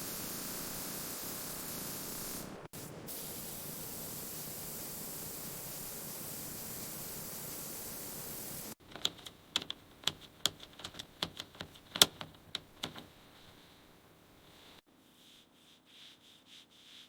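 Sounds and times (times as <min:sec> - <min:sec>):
steady hiss: 0:00.0 - 0:14.8
sharp irregular clicks and taps: 0:08.8 - 0:13.1.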